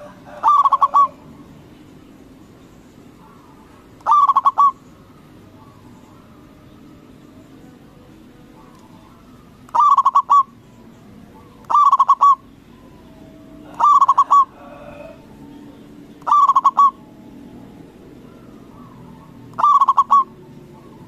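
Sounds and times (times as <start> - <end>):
dove cooing: 0.0 - 1.7, 3.0 - 21.0.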